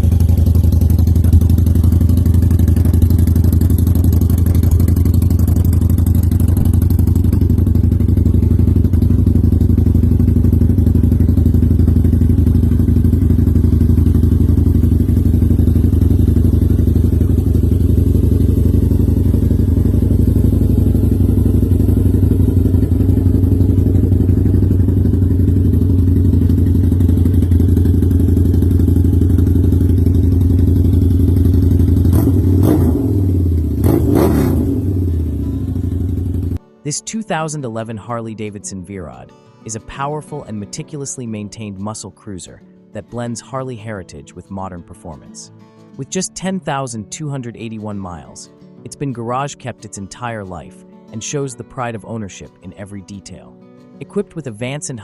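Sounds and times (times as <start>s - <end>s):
motorcycle engine idling: 0.0s - 36.6s.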